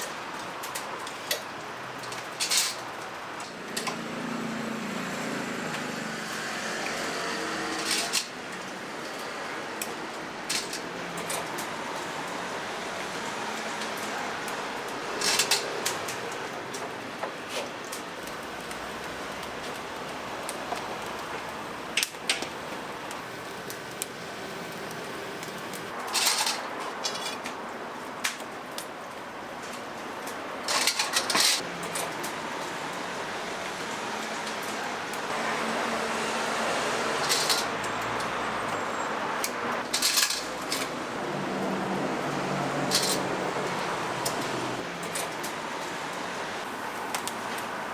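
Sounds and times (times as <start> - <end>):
clatter of metal utensils and pans: 0.0 - 4.2, 5.8 - 12.1, 15.0 - 19.8, 25.4 - 27.6, 30.6 - 32.3, 37.2 - 38.3, 39.8 - 41.0, 42.8 - 45.5.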